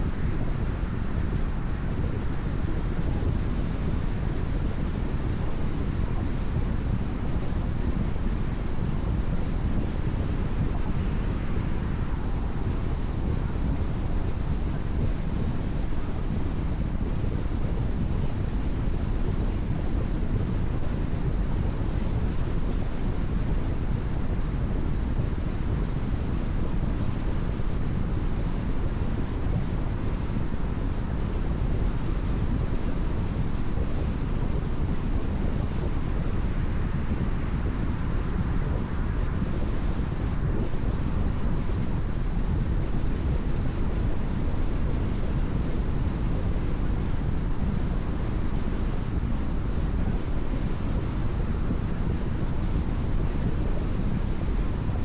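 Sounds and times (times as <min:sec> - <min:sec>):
wind noise: 0:00.0 - 0:55.0.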